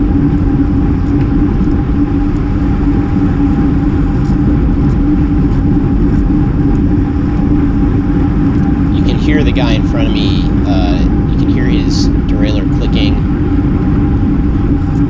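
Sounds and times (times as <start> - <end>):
bicycle road noise: 0.0 - 15.0
steady hum: 0.0 - 15.0
wind rush: 0.0 - 15.0.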